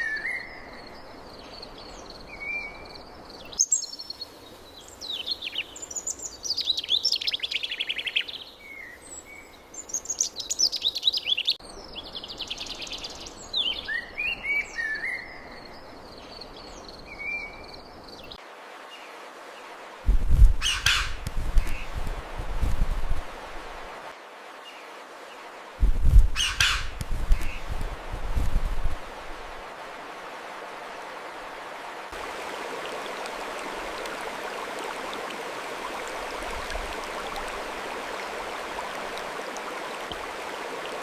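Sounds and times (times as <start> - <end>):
songbirds singing: 0.0 - 19.7, 20.6 - 22.0, 26.2 - 27.8
faint steady hiss: 0.0 - 41.0.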